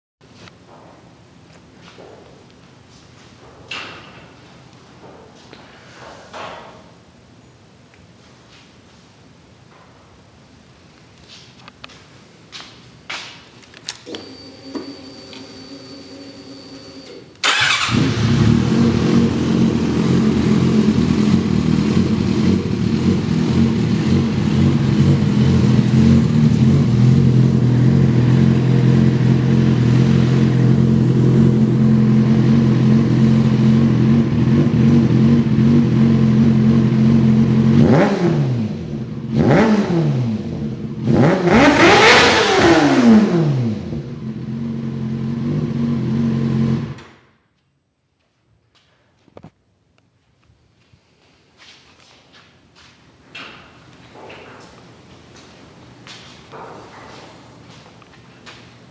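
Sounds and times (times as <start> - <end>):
motorcycle engine starting: 14.0 - 47.2
motorcycle engine revving: 14.9 - 47.0
motorcycle engine idling: 17.4 - 37.8.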